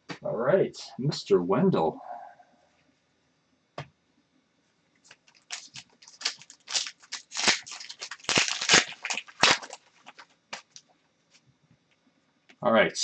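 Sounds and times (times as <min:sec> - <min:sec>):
wrapper crinkling and tearing: 0:05.1 - 0:10.8.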